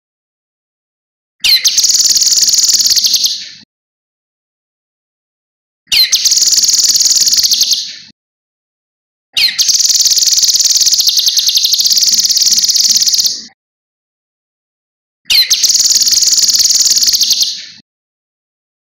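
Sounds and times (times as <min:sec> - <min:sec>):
songbird high-pitched trills: 0:01.4 - 0:03.5, 0:05.9 - 0:08.0, 0:09.4 - 0:13.5, 0:15.3 - 0:17.8.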